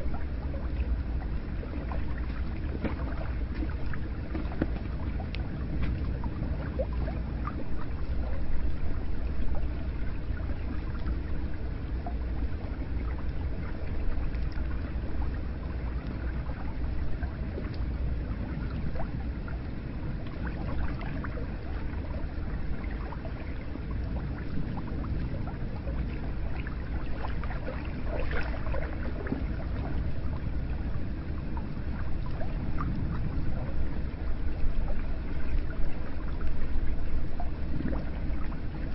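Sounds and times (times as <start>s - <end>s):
small splashes and drips: 0.0s - 11.4s, 20.2s - 30.7s.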